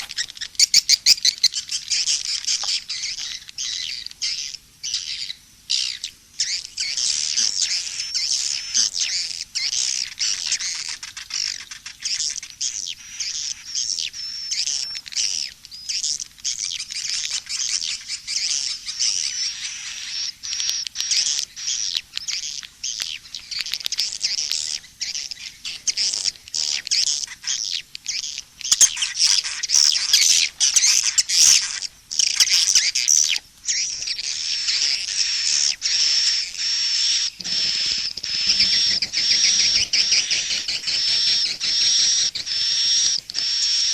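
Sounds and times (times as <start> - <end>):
swiftlet chirps and trills: 28.6 - 43.9.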